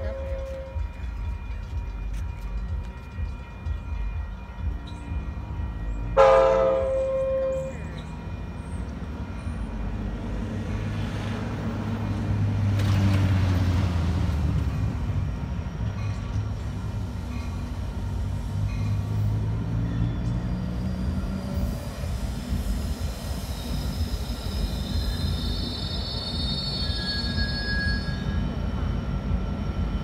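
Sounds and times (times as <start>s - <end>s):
diesel train rumble: 0.0s - 30.0s
train horn blast: 6.2s - 7.8s.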